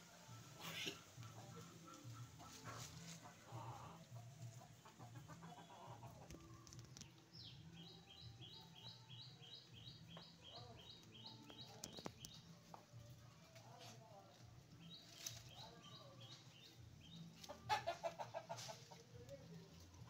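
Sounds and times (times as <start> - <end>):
bird chirping: 5.7 - 12.5.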